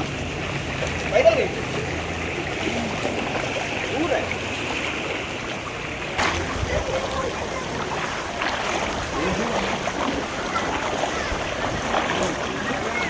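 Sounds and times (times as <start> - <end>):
distant voices: 0.0 - 13.0
floodwater rushing and splashing: 0.0 - 13.0.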